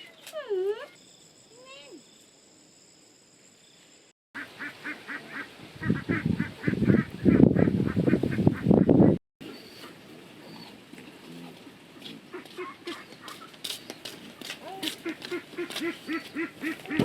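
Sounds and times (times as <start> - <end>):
fowl honking: 14.9 - 17.0.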